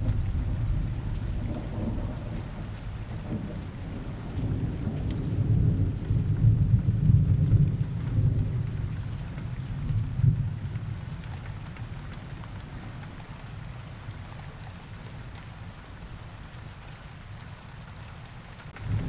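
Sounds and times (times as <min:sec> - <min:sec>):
low rolling thunder: 0:00.0 - 0:11.2, 0:18.8 - 0:19.0
rain: 0:00.0 - 0:19.0.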